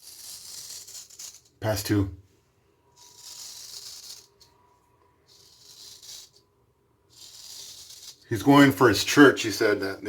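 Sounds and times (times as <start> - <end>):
straight razor scraping stubble: 0.0 - 2.0, 3.0 - 4.6, 5.2 - 6.4, 7.1 - 9.8.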